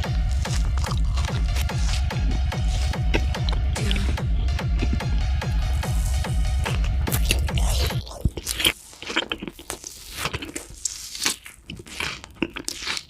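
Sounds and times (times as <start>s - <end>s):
crunchy food being chewed: 0.0s - 3.7s, 4.6s - 13.0s
electronic music with thumping beat: 0.0s - 8.7s.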